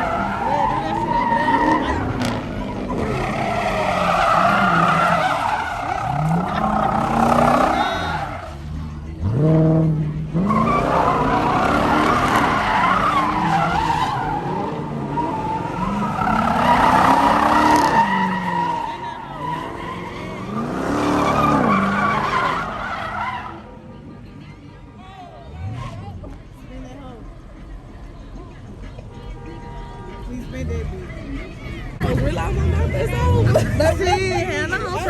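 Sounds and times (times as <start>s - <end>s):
tyres squealing: 0.0s - 23.8s
car engine revving: 0.0s - 24.3s, 25.3s - 28.8s.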